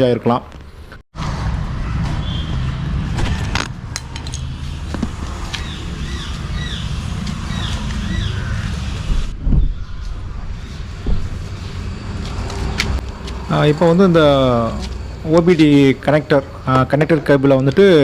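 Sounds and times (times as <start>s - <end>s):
distant traffic rumble: 1.2s - 18.0s
bird chirping: 5.6s - 11.2s.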